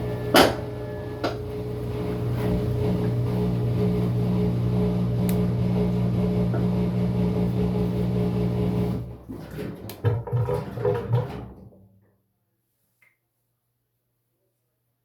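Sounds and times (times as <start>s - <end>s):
washing machine motor humming: 0.0s - 11.5s.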